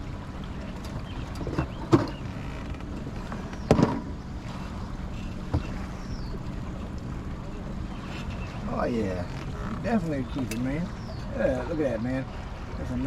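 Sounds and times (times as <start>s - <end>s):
heavy knocks inside a boat: 1.2s - 4.6s, 5.4s - 6.0s.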